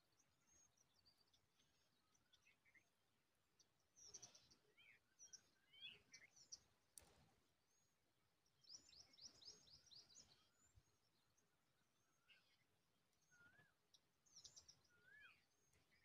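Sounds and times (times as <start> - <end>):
sharp click: 7.0 - 7.3.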